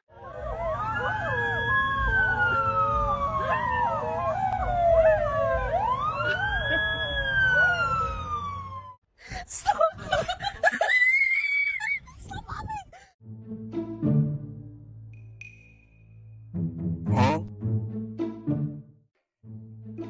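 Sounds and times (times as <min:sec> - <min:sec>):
siren wailing: 0:00.1 - 0:09.0.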